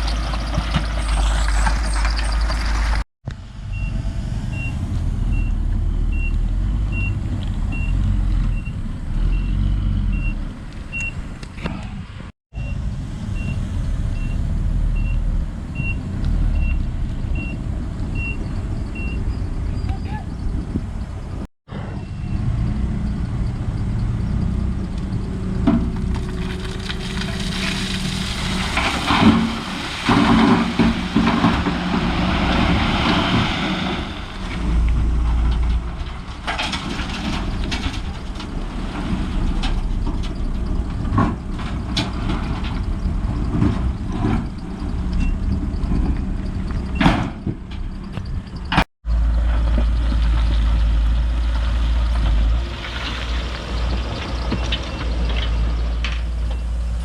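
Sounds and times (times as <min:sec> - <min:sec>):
heavy earthmoving machinery running: 0:00.0 - 0:11.1, 0:21.7 - 0:57.0
scraping and clattering: 0:25.7 - 0:50.5.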